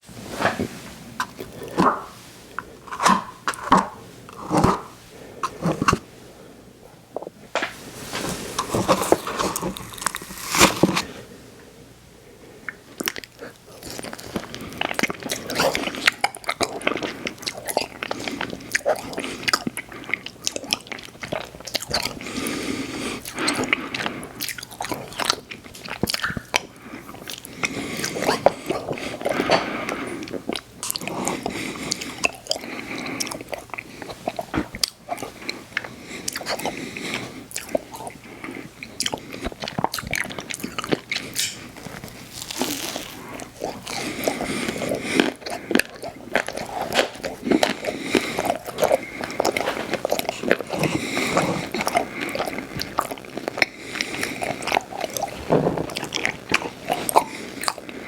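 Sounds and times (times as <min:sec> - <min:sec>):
eating and crunchy chewing: 0:00.1 - 0:06.1, 0:07.1 - 0:11.3, 0:12.6 - 0:58.0.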